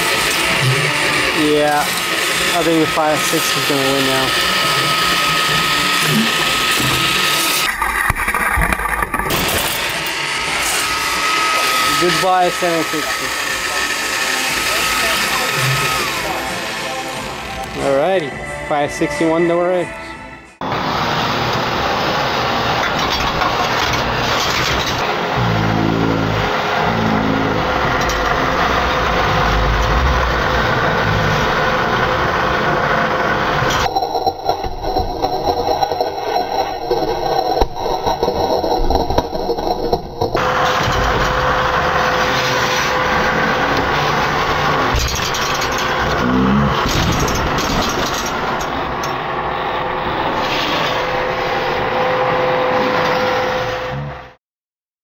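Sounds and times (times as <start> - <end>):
robot vacuum whirring: 0.0 - 17.9, 22.5 - 51.9
low motor hum: 0.0 - 18.9, 20.4 - 54.4.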